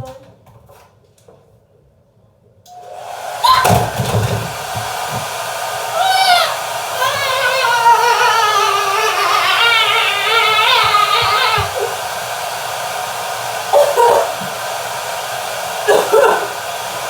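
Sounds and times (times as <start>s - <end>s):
hair dryer blowing: 2.7s - 17.0s
person singing: 5.9s - 12.0s.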